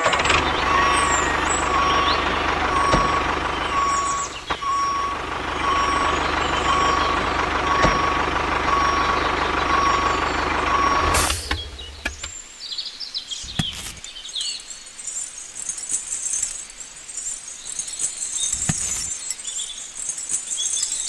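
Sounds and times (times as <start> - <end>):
reversing alarm beeping: 0.0 - 12.1
engine humming: 0.0 - 12.4.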